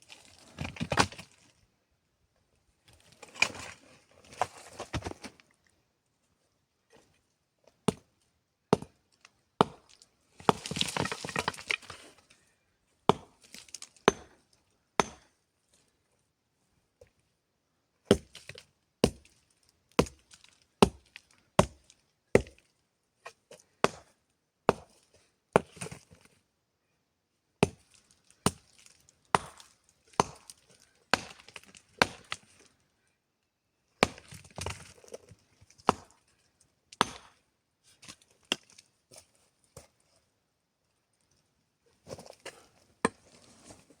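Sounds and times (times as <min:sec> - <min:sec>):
wood being chopped: 0:09.6 - 0:09.8, 0:13.1 - 0:13.3, 0:14.1 - 0:14.3, 0:15.0 - 0:15.3, 0:19.0 - 0:19.2, 0:23.8 - 0:24.1, 0:29.3 - 0:29.6, 0:30.2 - 0:32.4, 0:34.0 - 0:34.7, 0:37.0 - 0:37.4.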